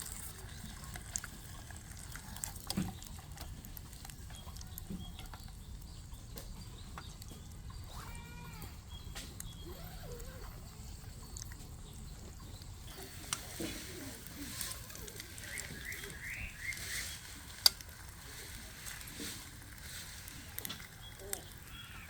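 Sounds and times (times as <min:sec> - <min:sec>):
bird chirping: 0:00.0 - 0:22.0.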